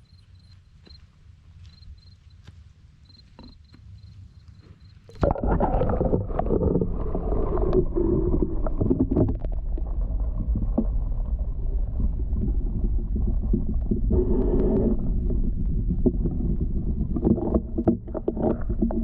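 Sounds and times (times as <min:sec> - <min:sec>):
deep underwater rumble: 0:05.1 - 0:19.0.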